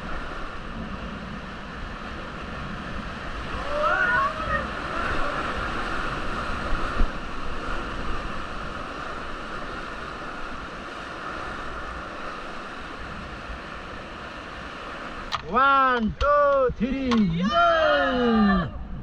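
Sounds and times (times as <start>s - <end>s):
rushing whitewater river: 0.0s - 18.6s.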